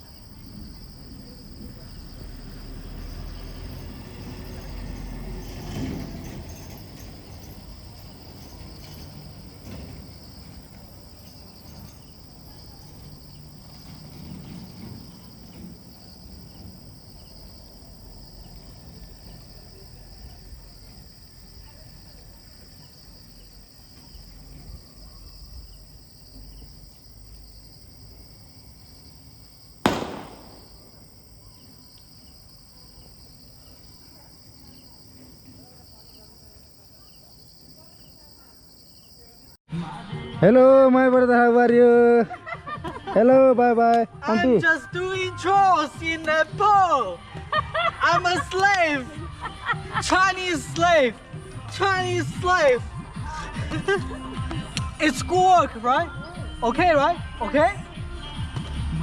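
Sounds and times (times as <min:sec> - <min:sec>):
crickets chirping: 0:00.0 - 0:39.6
sharp bang: 0:29.9 - 0:31.1.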